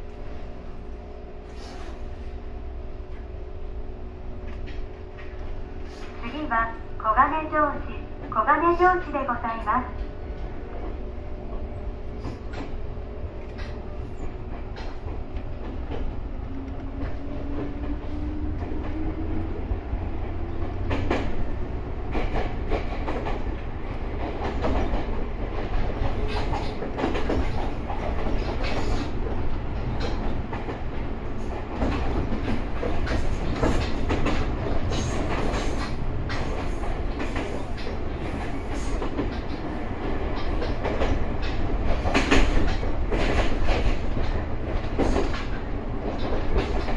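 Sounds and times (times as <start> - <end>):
wheels clicking over rail joints: 20.5 - 46.9.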